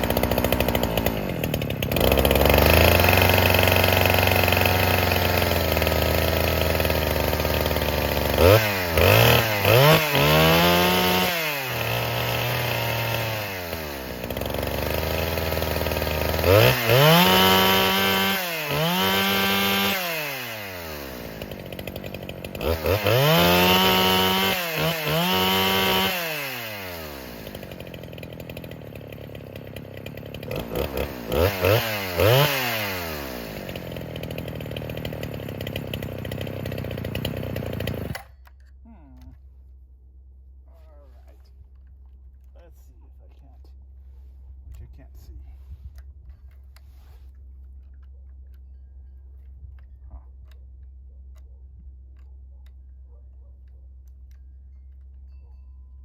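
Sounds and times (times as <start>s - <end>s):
chainsaw engine idling and revving: 0.0s - 39.2s.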